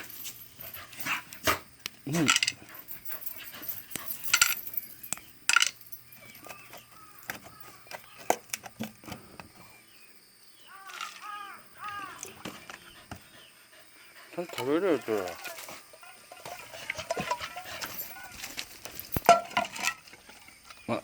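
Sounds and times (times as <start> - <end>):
dog eating from bowl: 14.4 - 20.1.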